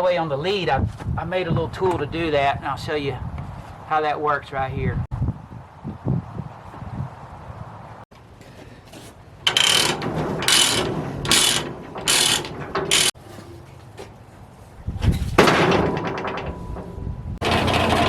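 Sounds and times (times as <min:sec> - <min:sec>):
metal ratchet strokes: 0:09.4 - 0:13.2.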